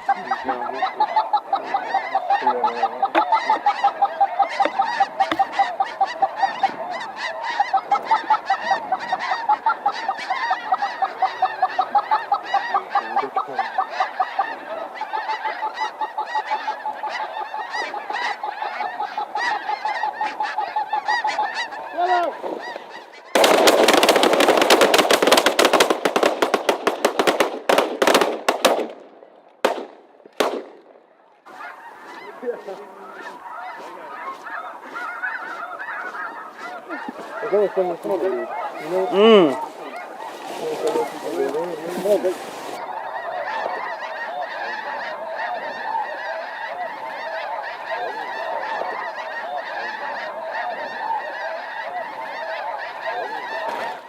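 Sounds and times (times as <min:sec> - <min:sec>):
geese honking: 0:00.0 - 0:54.0
shotgun volley: 0:23.4 - 0:31.0
lone shotgun shots: 0:23.4 - 0:31.1.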